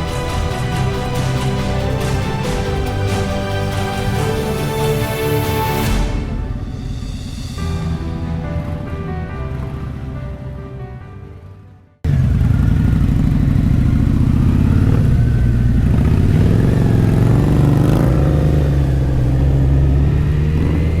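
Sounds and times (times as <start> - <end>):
motorcycle engine rumbling: 6.4 - 21.0.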